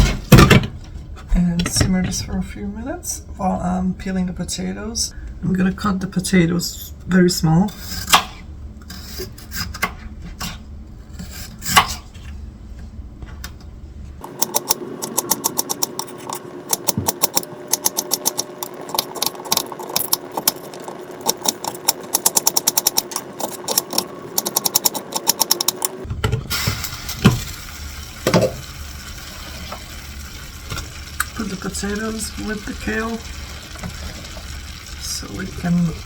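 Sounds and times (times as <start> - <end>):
steady hum: 10.8 - 36.0.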